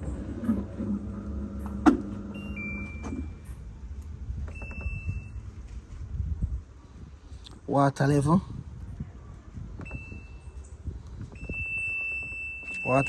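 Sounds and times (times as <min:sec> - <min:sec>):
washing machine motor hum: 0:00.0 - 0:05.7.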